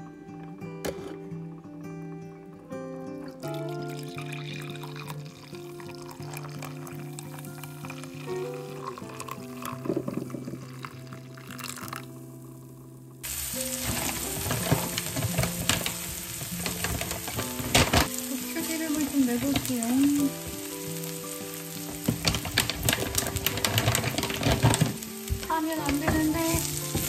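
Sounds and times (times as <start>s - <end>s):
onions sizzling in hot oil: 13.2s - 27.0s.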